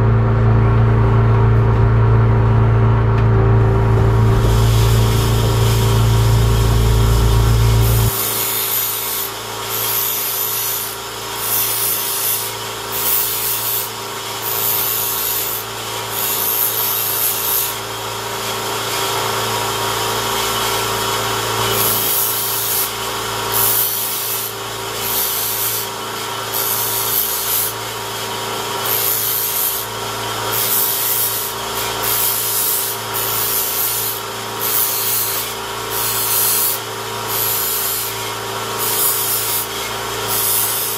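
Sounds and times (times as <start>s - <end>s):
loud low rumble: 0.0s - 8.2s
knife-sharpening machine running: 3.3s - 40.9s
blade rasping against abrasive: 4.2s - 40.9s.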